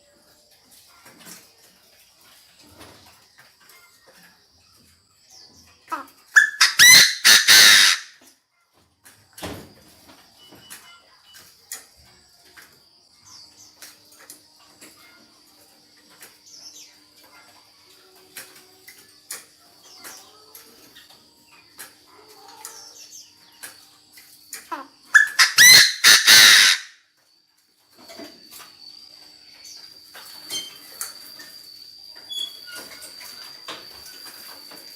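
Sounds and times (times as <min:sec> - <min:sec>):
francolin harsh call: 0:06.4 - 0:08.2, 0:24.8 - 0:27.0
faint chirps: 0:08.2 - 0:25.8, 0:27.0 - 0:34.9
faint steady high tone: 0:08.4 - 0:25.1, 0:27.0 - 0:34.9.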